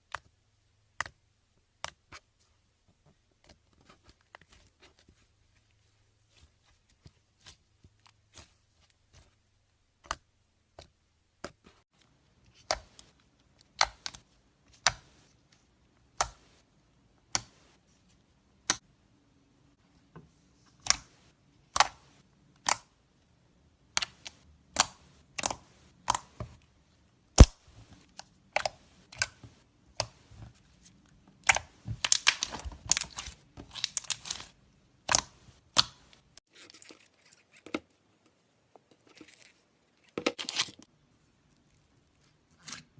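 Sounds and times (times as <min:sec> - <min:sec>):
slime popping and clicking: 0:27.4 - 0:27.6.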